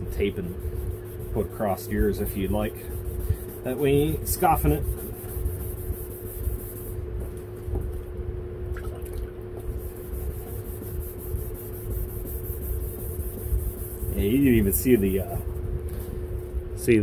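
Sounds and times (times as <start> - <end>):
wet sanding rubbing: 0.0 - 7.0, 9.6 - 15.6
steady hum: 0.0 - 17.0.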